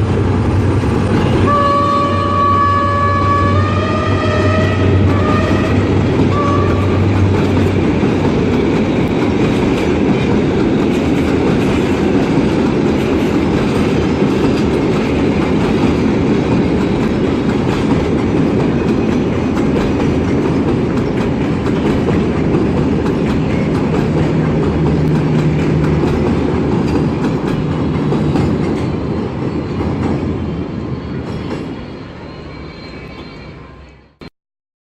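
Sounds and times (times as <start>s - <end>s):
locomotive engine hum: 0.0s - 32.5s
train horn: 1.4s - 7.4s
train wheels clickety-clack: 4.3s - 30.4s, 31.2s - 31.8s.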